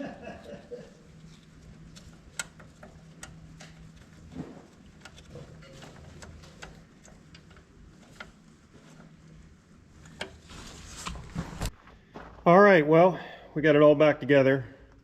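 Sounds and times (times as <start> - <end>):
tools and metal parts clicking: 1.2 - 9.1.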